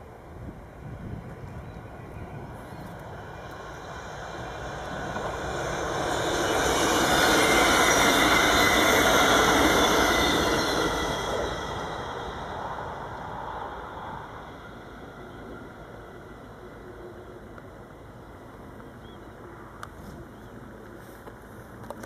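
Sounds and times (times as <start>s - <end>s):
electric train passing: 0.0s - 21.8s.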